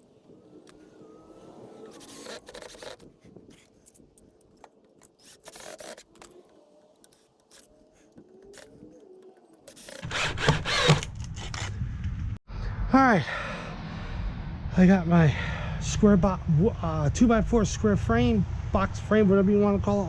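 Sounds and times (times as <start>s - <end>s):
wood scraping and clicking: 0.0s - 11.8s
wood scraping clatter: 0.0s - 11.8s.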